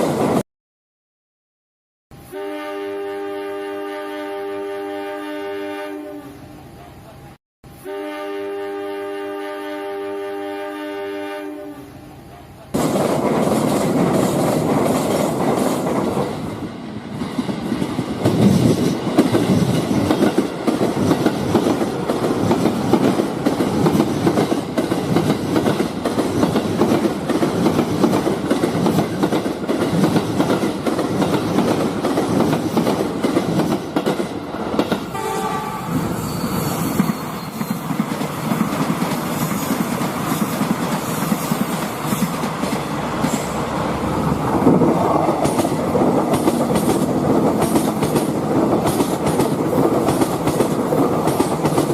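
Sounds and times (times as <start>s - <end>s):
model train horn: 2.2s - 7.1s, 7.7s - 12.5s, 35.1s - 37.5s
model train rattling on track: 12.7s - 16.6s, 17.2s - 35.1s, 36.4s - 43.7s, 44.5s - 51.9s.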